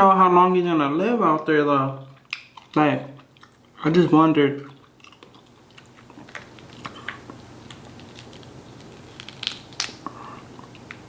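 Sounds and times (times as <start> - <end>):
person chewing food: 2.0 - 3.9, 4.6 - 11.0.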